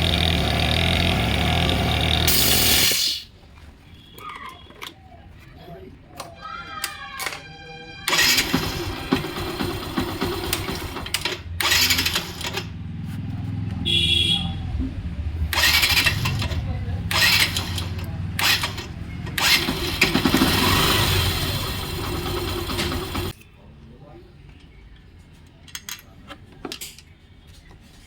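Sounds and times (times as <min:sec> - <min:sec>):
motorcycle engine revving: 0:00.0 - 0:03.2, 0:08.1 - 0:23.3.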